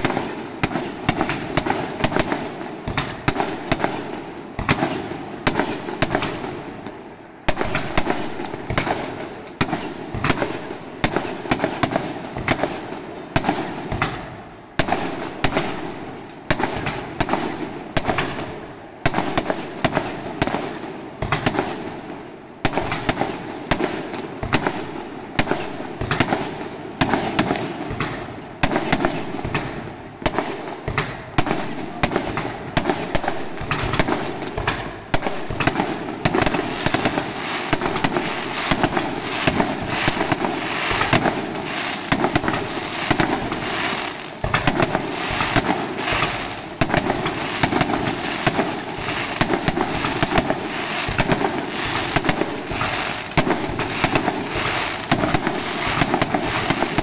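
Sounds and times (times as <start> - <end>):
small firework pops: 0.0 - 57.0
firework shells bursting: 30.9 - 57.0.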